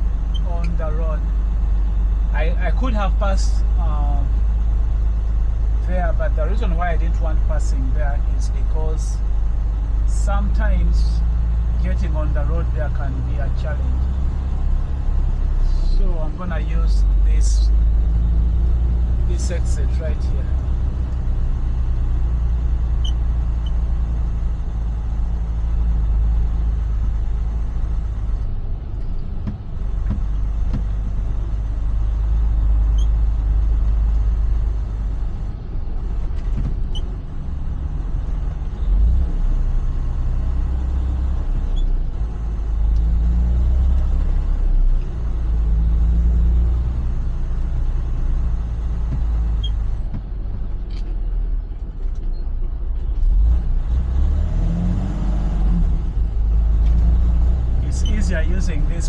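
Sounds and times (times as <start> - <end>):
truck diesel engine rumbling: 0.0 - 59.0.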